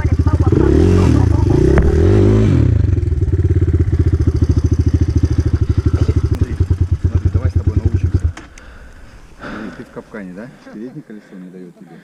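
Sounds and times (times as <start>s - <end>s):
motorcycle engine revving and idling: 0.0s - 9.6s.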